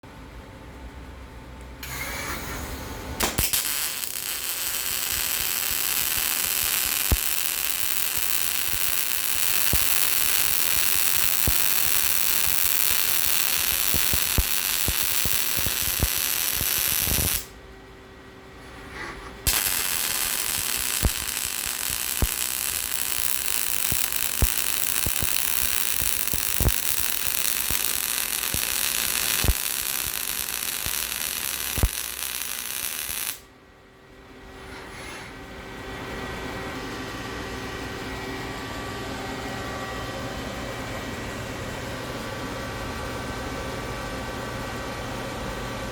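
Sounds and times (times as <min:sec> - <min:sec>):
welding arc crackling hiss: 0:01.8 - 0:17.5, 0:19.4 - 0:33.5
sharp welding pops: 0:03.2 - 0:17.5, 0:19.4 - 0:33.5.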